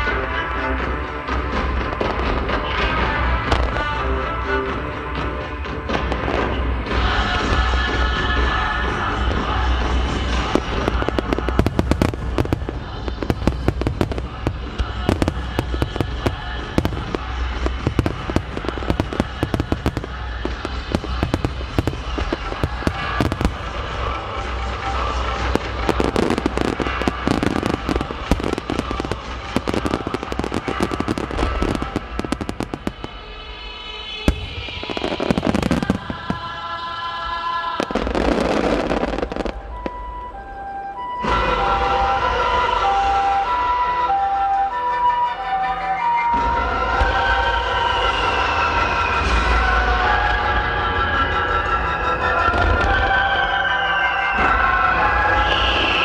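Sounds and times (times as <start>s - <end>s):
music with held notes: 0.0s - 55.3s
firework crackles: 1.4s - 44.8s.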